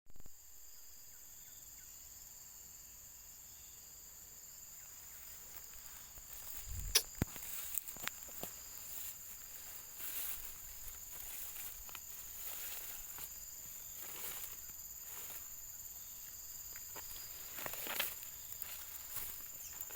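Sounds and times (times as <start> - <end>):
insects chirring: 0.2 - 19.9
rustling: 5.5 - 19.9.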